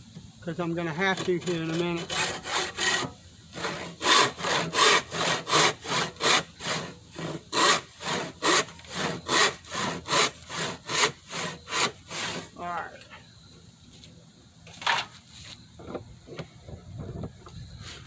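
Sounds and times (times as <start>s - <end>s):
hand saw cutting wood: 1.0s - 12.6s.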